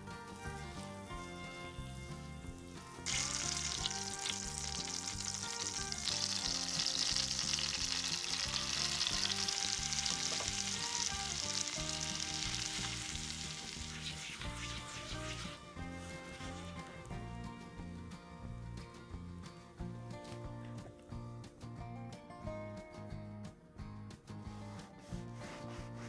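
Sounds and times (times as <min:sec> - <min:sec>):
food sizzling in hot oil: 0:00.3 - 0:17.2.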